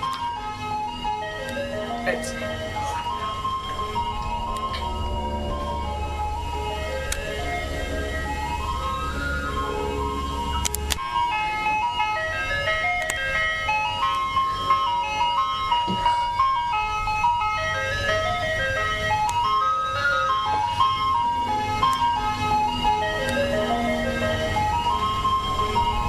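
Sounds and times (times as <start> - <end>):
ice cream truck jingle: 0.0 - 26.0
low hum: 1.6 - 11.3.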